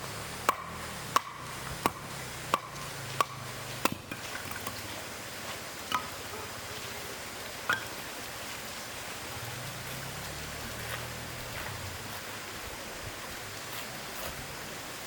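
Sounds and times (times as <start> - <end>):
chopping strokes: 0.4 - 4.6.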